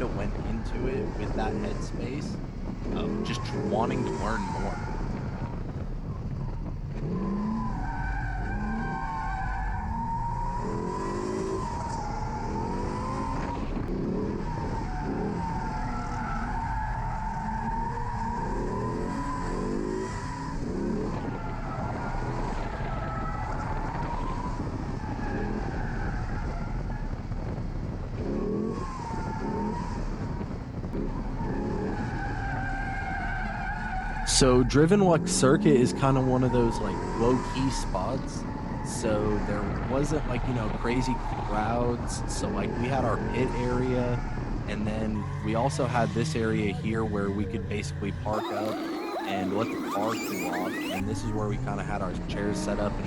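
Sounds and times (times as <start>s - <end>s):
car engine revving: 0.0s - 53.0s
tyres squealing: 45.0s - 51.0s.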